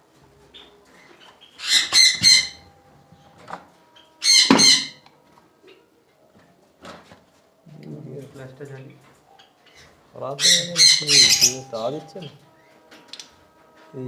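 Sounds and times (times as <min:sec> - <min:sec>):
birds squawking shrilly: 0:01.3 - 0:02.7, 0:04.0 - 0:05.0, 0:09.7 - 0:12.3.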